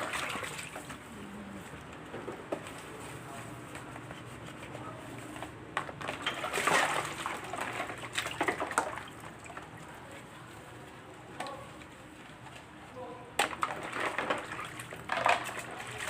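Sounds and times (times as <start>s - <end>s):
liquid sloshing and splashing: 0.0s - 1.3s, 5.8s - 10.3s, 13.4s - 16.0s.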